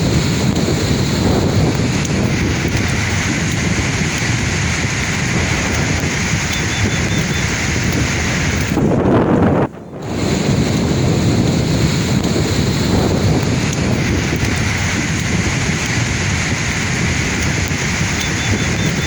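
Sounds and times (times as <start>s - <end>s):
sea waves washing on shore: 0.0s - 9.0s
wind on microphone: 0.0s - 19.0s.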